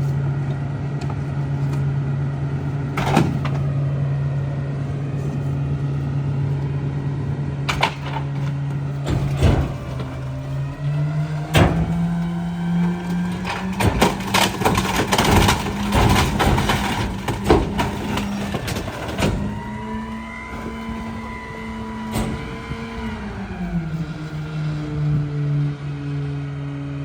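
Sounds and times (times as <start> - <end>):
hydraulic whine: 0.0 - 26.1
truck engine at raised revs: 0.0 - 27.0
trash cracking and snapping: 2.7 - 4.1, 7.6 - 25.2.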